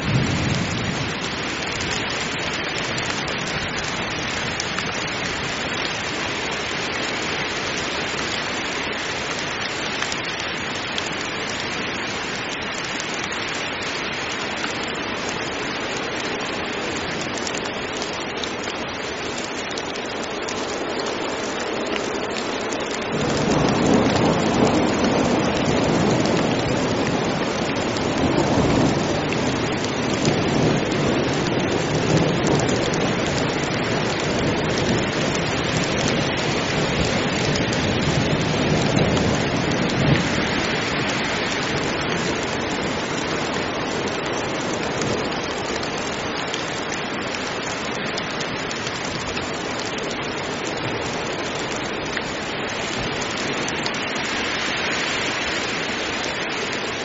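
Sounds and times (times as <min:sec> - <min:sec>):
thunder rumbling: 0:00.0 - 0:02.5, 0:23.1 - 0:42.8
heavy rain hissing: 0:00.0 - 0:57.0.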